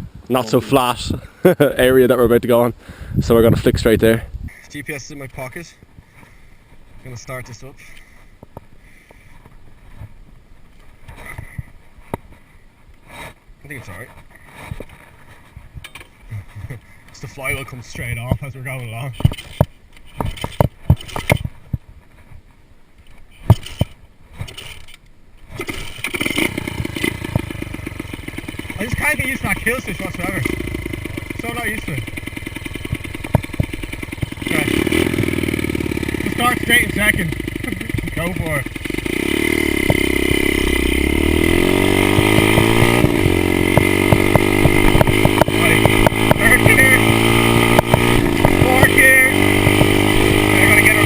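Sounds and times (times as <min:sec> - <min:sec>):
sharp knocks and clatter: 0:19.1 - 0:21.6, 0:23.4 - 0:25.0, 0:32.1 - 0:35.0, 0:41.5 - 0:50.5
sharp clunks: 0:19.2 - 0:21.6, 0:23.4 - 0:27.6, 0:32.8 - 0:34.4, 0:42.1 - 0:48.7
motorbike engine running: 0:25.6 - 0:51.0.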